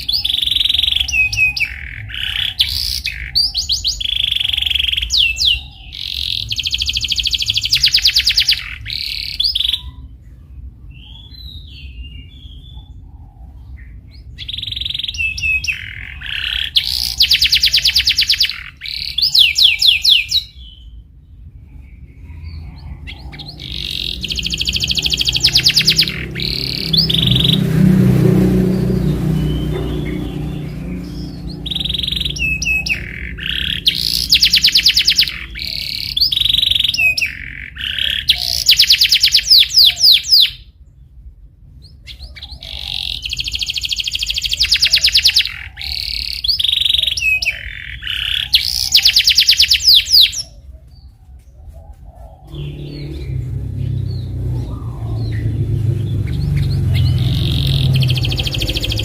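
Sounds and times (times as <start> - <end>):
canary trilling and chirping: 0.0 - 51.1, 51.7 - 59.0
low rumble: 20.4 - 34.5, 52.2 - 59.0.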